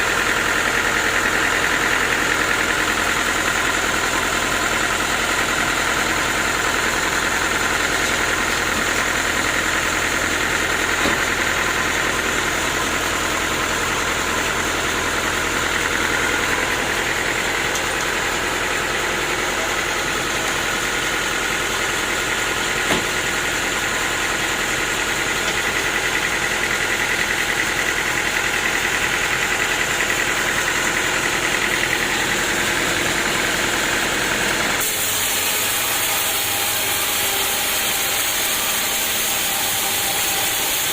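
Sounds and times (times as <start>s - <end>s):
sawmill engine running: 0.0s - 40.9s
brief knock: 22.9s - 23.1s.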